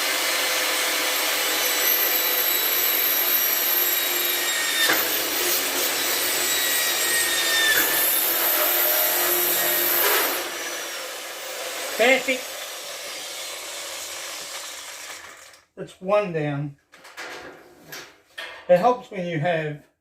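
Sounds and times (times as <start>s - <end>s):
electric drill boring metal: 0.0s - 15.6s.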